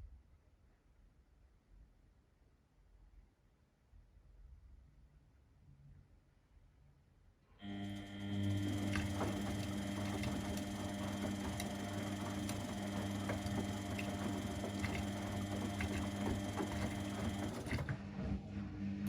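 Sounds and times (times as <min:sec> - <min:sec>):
laundry machine motor hum: 0:07.6 - 0:19.0.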